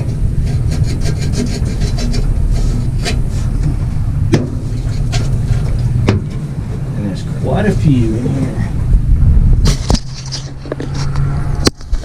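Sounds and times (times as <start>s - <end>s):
knocks and scrapes on metal: 0.0s - 6.6s
steady low rumble: 0.0s - 12.0s.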